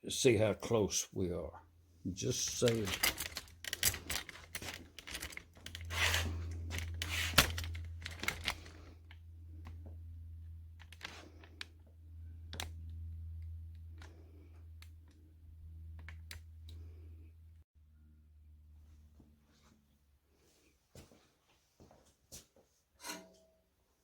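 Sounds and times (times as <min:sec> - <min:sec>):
handling clicks and knocks: 0:02.2 - 0:09.8.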